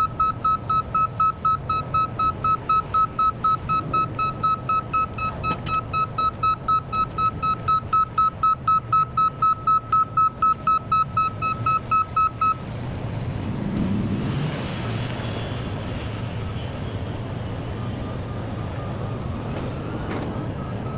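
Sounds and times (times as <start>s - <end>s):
reversing alarm beeping: 0.0s - 12.6s, 20.6s - 20.9s
diesel engine running: 0.0s - 20.9s.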